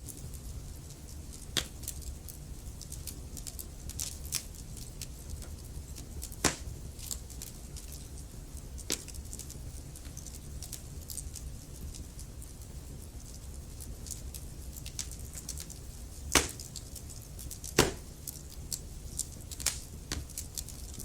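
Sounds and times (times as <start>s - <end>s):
burning logs popping: 0.0s - 21.0s
fireplace flames rumbling: 0.0s - 21.0s.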